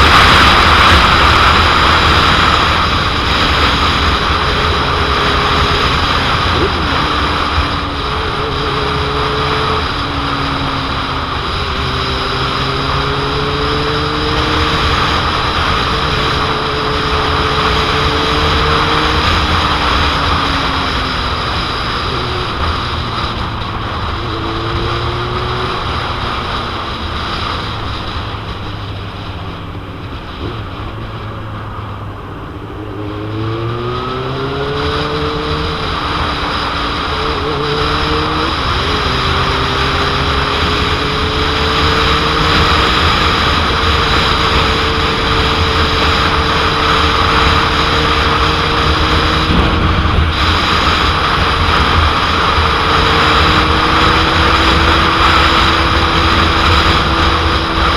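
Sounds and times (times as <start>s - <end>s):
motorcycle engine revving: 0.0s - 57.9s
wind buffeting microphone: 0.0s - 57.9s.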